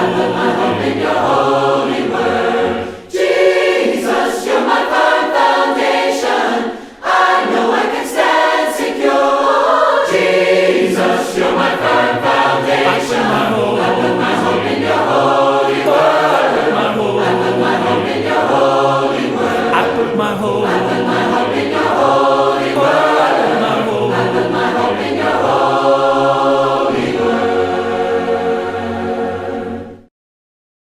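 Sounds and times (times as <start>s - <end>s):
choir singing a cappella: 0.0s - 30.1s.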